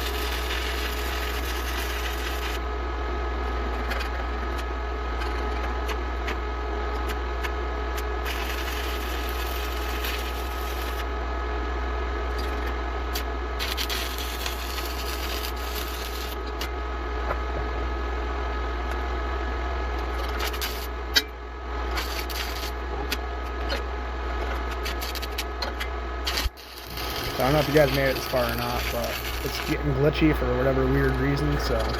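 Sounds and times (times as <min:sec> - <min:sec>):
scattered clicks and crackles: 0:00.0 - 0:02.6, 0:03.6 - 0:11.1, 0:12.3 - 0:16.7, 0:19.9 - 0:21.3, 0:21.9 - 0:23.8, 0:24.4 - 0:31.9
low electrical hum: 0:00.0 - 0:31.9
steady tones: 0:26.6 - 0:31.9.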